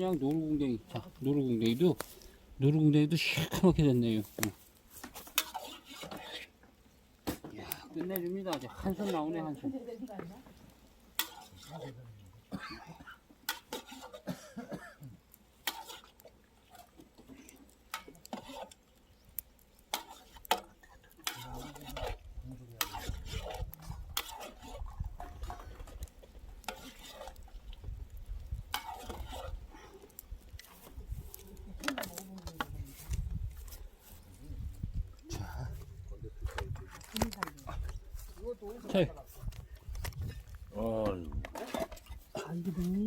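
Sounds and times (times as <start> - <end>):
metal utensils scraping a pot: 3.2 - 6.6, 7.9 - 9.9, 11.1 - 12.0, 13.1 - 14.3, 15.6 - 18.9, 19.8 - 34.9, 36.4 - 43.0.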